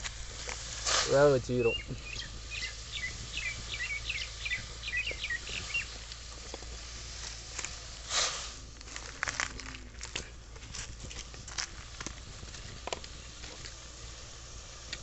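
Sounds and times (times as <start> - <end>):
songbird chirping: 1.5 - 6.0.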